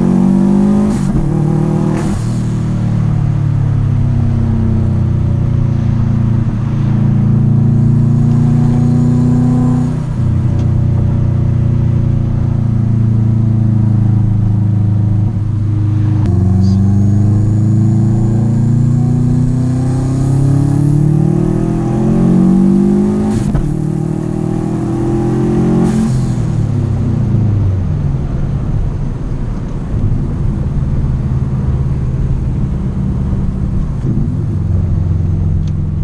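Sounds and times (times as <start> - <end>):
car engine accelerating: 0.0 - 36.0
high whine: 0.8 - 20.0.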